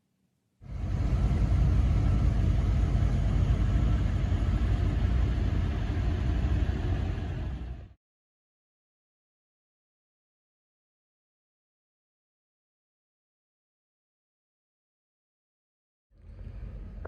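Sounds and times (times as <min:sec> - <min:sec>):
vehicle engine and road noise: 0:00.6 - 0:08.0, 0:16.2 - 0:17.0.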